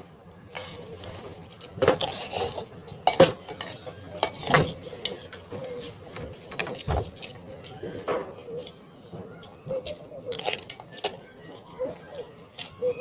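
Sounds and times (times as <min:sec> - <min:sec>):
utensils clinking on dishes: 0:01.6 - 0:08.8.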